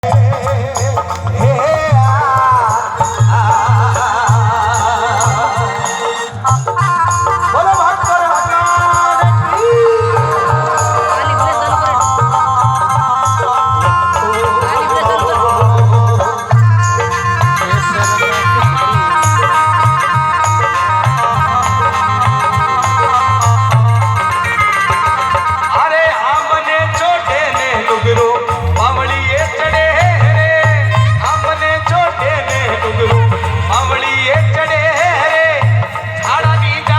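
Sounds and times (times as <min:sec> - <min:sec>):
person singing: 0:00.0 - 0:36.9
plucked string instrument: 0:00.0 - 0:36.9
steady drum beat: 0:00.0 - 0:36.9
wavering folk melody: 0:00.0 - 0:36.9
pulsing bass: 0:09.2 - 0:25.5, 0:28.5 - 0:34.6.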